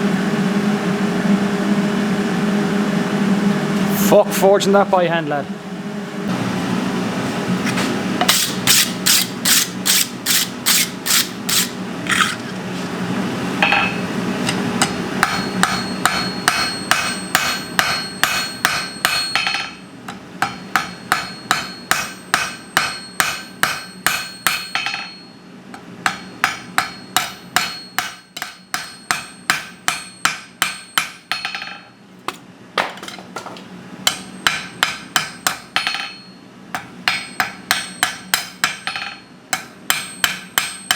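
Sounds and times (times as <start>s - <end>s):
steady low hum: 0.0s - 40.9s
hammer ringing on hot steel: 13.6s - 32.0s, 34.0s - 40.9s.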